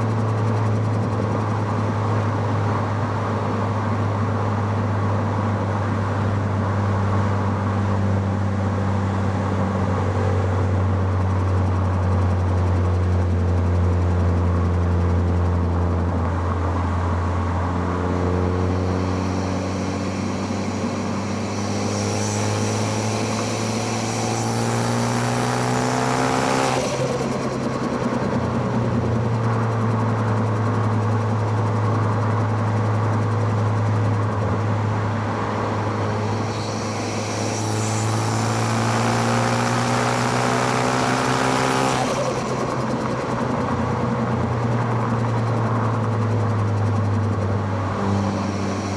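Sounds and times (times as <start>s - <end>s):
car engine revving: 17.4s - 29.8s, 34.1s - 48.9s.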